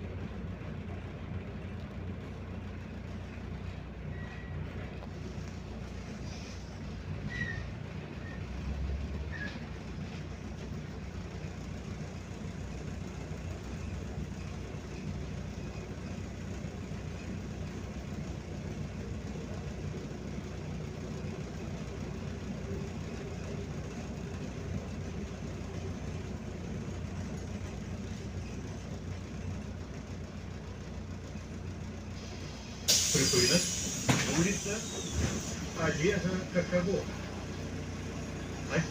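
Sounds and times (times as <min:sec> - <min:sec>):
bus engine and road rumble: 0:00.0 - 0:38.9
brief squeaks: 0:04.1 - 0:04.7, 0:07.2 - 0:08.4, 0:09.3 - 0:09.7, 0:32.9 - 0:35.7.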